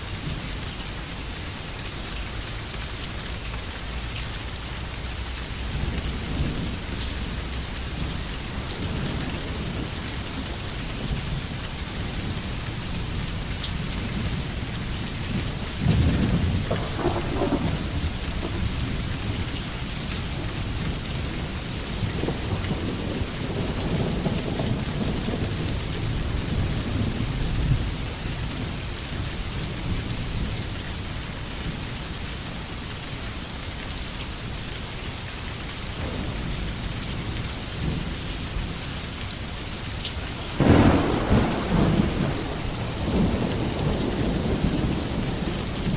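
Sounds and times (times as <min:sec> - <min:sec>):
rain falling through trees: 0:00.0 - 0:45.9
thunder rumbling: 0:05.2 - 0:28.8, 0:36.0 - 0:39.5, 0:40.2 - 0:45.9.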